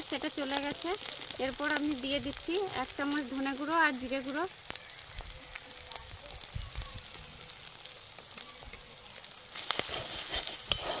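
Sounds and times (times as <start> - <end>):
soft sizzle with crackles: 0.0 - 11.0
metal spatula scraping wok: 9.5 - 11.0.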